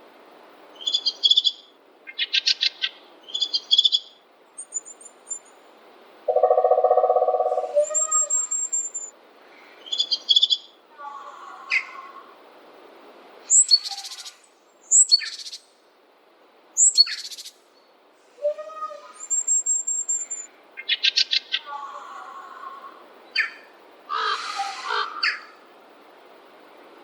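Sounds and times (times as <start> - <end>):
songbirds singing: 0.7 - 5.7, 6.3 - 12.2, 13.5 - 15.8, 16.8 - 25.6
bird high whistle: 6.3 - 9.1.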